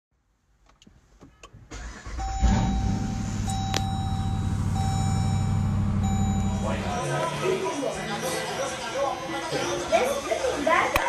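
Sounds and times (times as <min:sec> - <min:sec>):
vehicle engine starting and idling: 0:01.7 - 0:08.6
electronic chime tone: 0:02.2 - 0:07.2.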